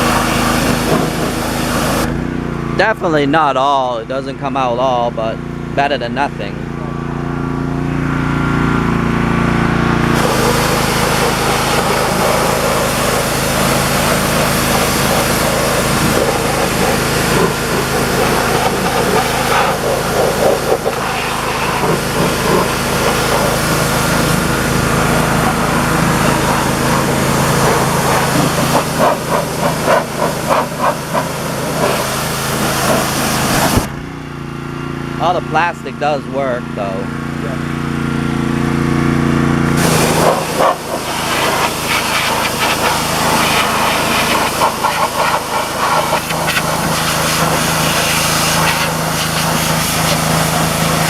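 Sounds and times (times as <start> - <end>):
water jet spraying plastic: 0.0 - 2.2, 10.1 - 33.9, 39.8 - 51.0
pressure washer motor drone: 0.0 - 51.0.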